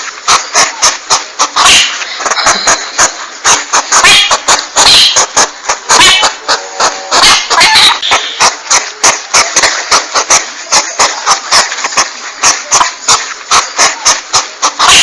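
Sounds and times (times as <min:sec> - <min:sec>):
constant hiss: 0:00.0 - 0:14.9
porcupine huffing: 0:00.0 - 0:15.0.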